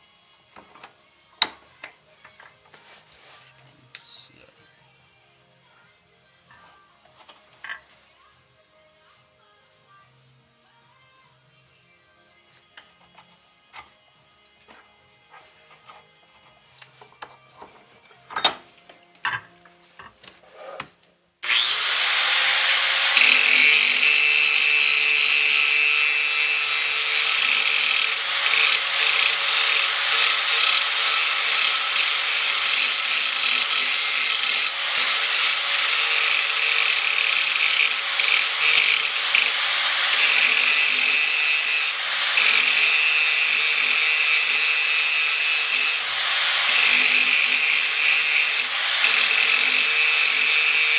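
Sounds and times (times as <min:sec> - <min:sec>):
power tool grinding steel: 0:21.4 - 0:50.9.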